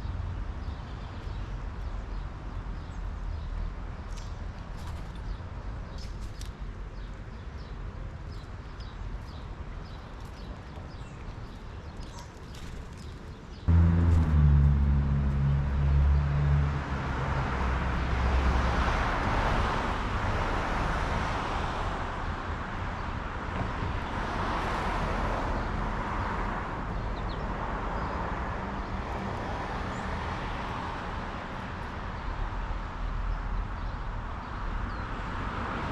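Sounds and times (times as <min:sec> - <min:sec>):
road noise: 0:00.0 - 0:35.9
vehicle engine hum: 0:13.7 - 0:19.8.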